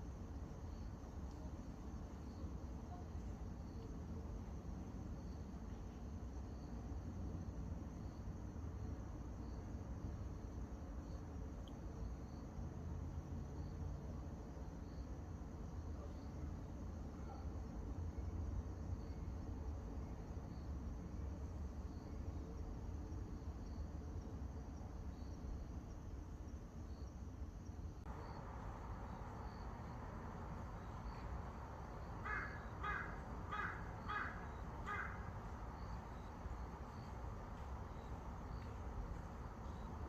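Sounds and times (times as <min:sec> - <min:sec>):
steady low rumble: 0:28.0 - 0:40.0
crow cawing: 0:32.2 - 0:35.6.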